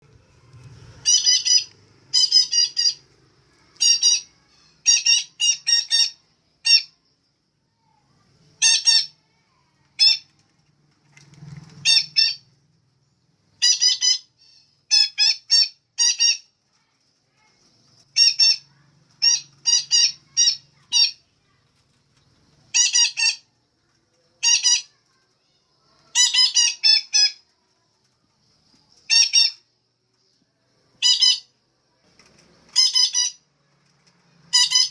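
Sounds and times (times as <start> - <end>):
parakeet high-pitched calls: 0.9 - 3.0, 3.6 - 7.0, 8.6 - 9.2, 10.0 - 10.3, 11.8 - 12.5, 13.6 - 16.5, 18.1 - 21.2, 22.7 - 23.5, 24.4 - 25.0, 25.8 - 27.4, 29.1 - 29.7, 31.0 - 31.6, 32.7 - 33.4, 34.5 - 34.9.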